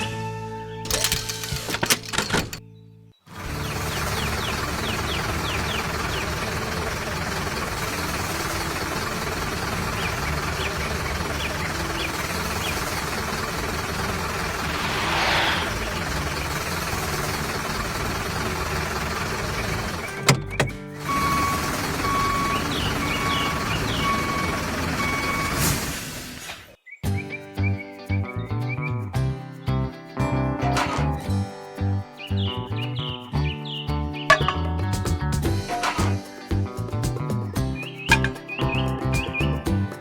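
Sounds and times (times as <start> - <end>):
vehicle engine sound effect: 3.4 - 20.4, 21.0 - 25.9
cartoon background music: 27.1 - 40.0.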